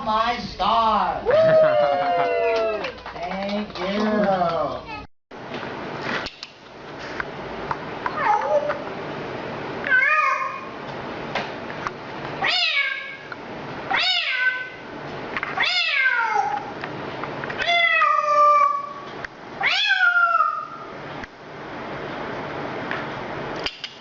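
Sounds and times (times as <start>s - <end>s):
cat meowing: 8.2s - 8.8s, 9.8s - 10.7s, 12.4s - 13.3s, 13.9s - 14.8s, 15.6s - 16.7s, 17.6s - 19.0s, 19.6s - 20.8s.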